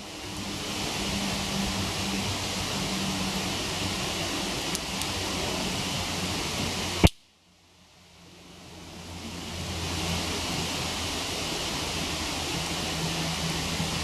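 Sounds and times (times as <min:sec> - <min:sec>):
waterfall rushing: 0:00.0 - 0:07.1, 0:08.0 - 0:14.0
sharp crack: 0:07.0 - 0:07.2.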